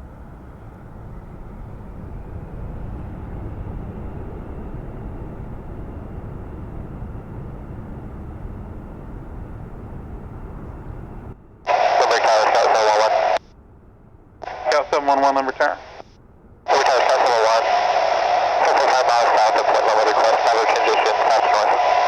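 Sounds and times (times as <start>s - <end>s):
jet engines rumbling: 0.0s - 13.5s, 14.2s - 22.0s
faint high whine: 9.1s - 13.6s, 14.4s - 22.0s.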